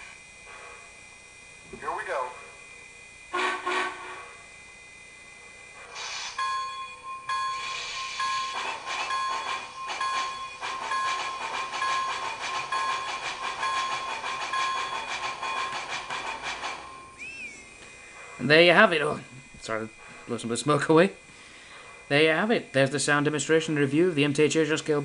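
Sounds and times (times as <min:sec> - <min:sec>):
rhythmic steam exhaust chuffs: 0:00.0 - 0:25.0
hiss of steam: 0:05.9 - 0:06.4, 0:07.6 - 0:08.5.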